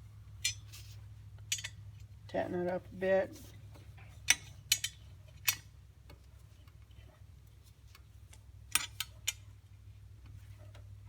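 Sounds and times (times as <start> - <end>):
metal clicks of bolt tightening: 4.3 - 5.6.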